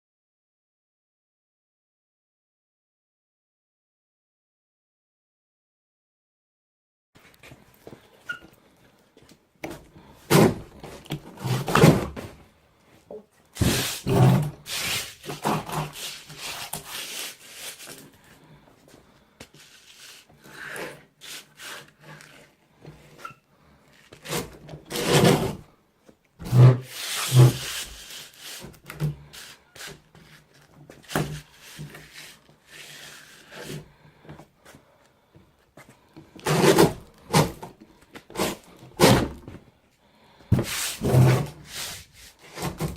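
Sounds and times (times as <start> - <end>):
door edge scraping on sandpaper: 13.6 - 18.0, 26.4 - 33.8, 40.6 - 42.9.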